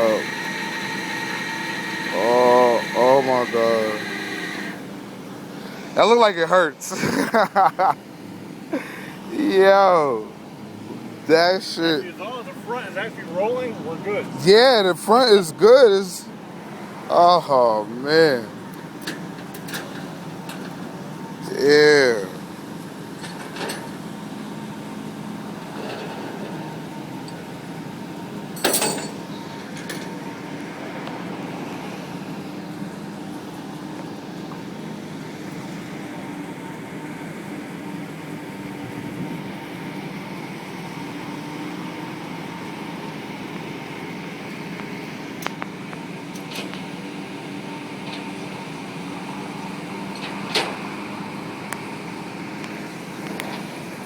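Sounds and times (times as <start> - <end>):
tow truck engine humming: 0.0 - 54.0
sharp metal clank: 28.6 - 29.2.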